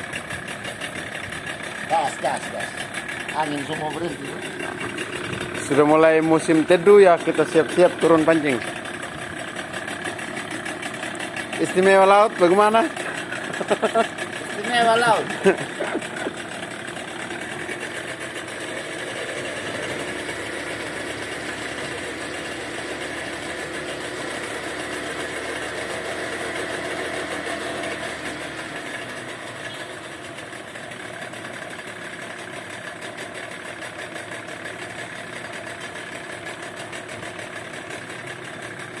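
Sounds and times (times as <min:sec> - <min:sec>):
speedboat engine droning: 0:00.0 - 0:31.7.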